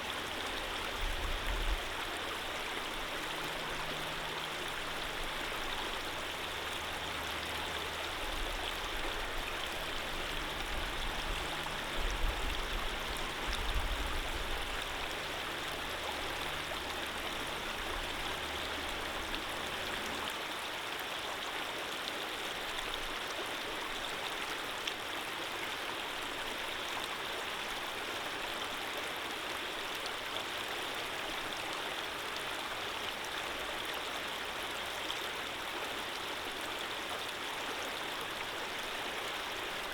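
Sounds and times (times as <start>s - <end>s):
running water flowing: 0.0s - 20.6s.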